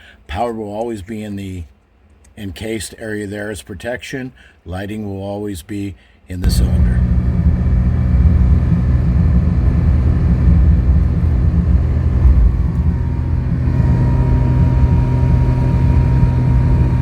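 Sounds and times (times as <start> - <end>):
car engine rumbling: 6.4 - 17.0.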